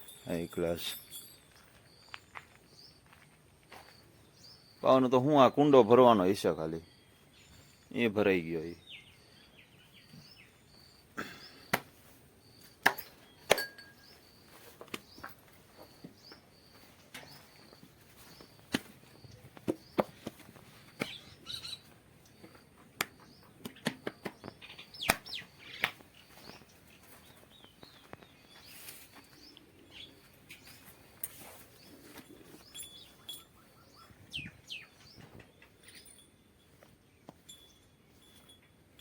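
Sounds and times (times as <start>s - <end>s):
birds chirping: 0.0s - 39.0s
sharp clicks and knocks: 23.0s - 25.2s.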